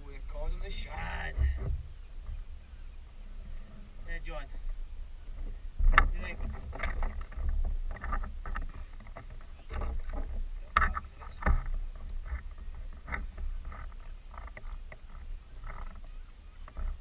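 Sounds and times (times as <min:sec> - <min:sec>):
wind rumble on microphone: 0:00.0 - 0:17.0
water splashing against hull: 0:04.5 - 0:17.0.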